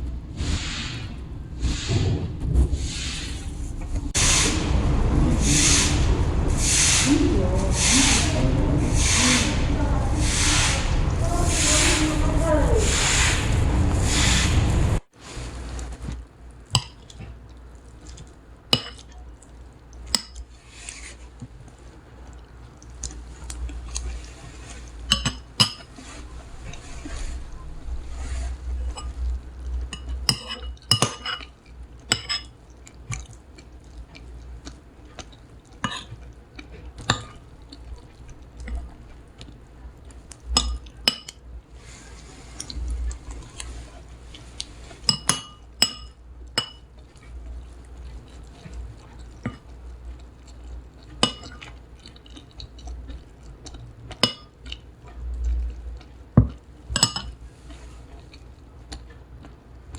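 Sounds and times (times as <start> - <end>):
low rumble: 0.0 - 15.1, 26.2 - 29.9
dishes and glassware clinking: 25.1 - 26.0, 28.8 - 29.3, 29.9 - 31.5, 32.1 - 32.6, 40.5 - 41.4, 45.0 - 46.8, 51.2 - 51.6, 54.2 - 54.6, 56.4 - 57.4.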